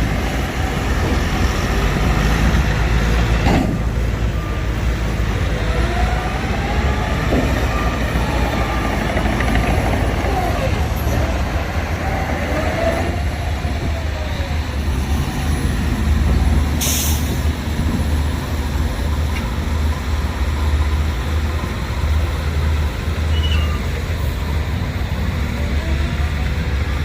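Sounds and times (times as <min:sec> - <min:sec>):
diesel engine rumbling: 0:00.0 - 0:27.0
air brake hiss: 0:16.8 - 0:17.4.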